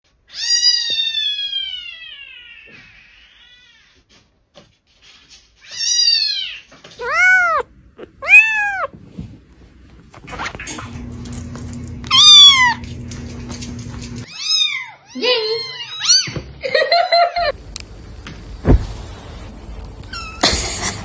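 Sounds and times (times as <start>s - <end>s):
cat meowing: 5.6s - 8.9s, 12.1s - 12.8s.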